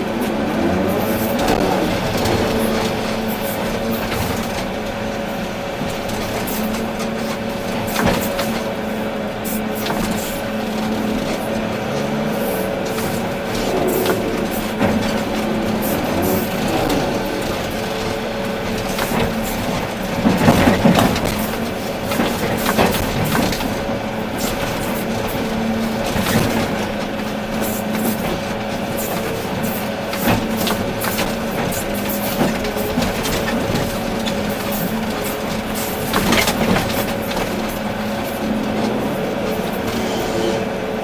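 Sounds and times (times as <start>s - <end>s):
excavator engine hum: 0.0s - 41.0s
bucket crunching rock and soil: 10.4s - 24.1s.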